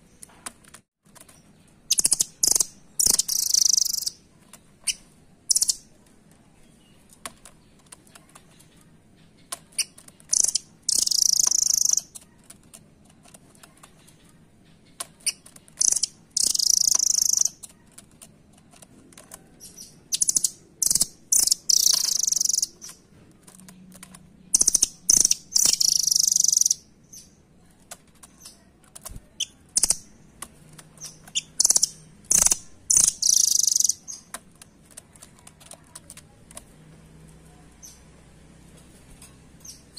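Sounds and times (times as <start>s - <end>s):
nuthatch chattering trills: 1.9s - 4.2s, 4.9s - 5.8s, 9.4s - 12.2s, 14.9s - 17.7s, 20.1s - 23.0s, 24.5s - 27.3s, 29.4s - 30.1s, 31.0s - 34.3s
faint clicks: 27.8s - 38.0s.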